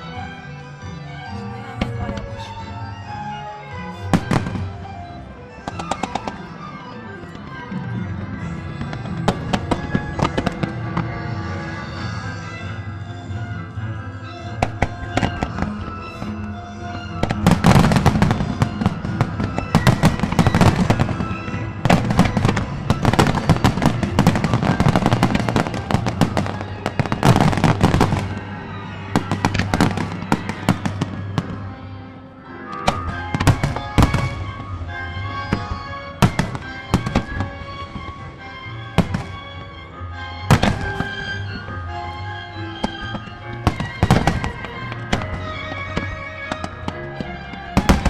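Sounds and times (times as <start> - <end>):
music: 0.0 - 48.0.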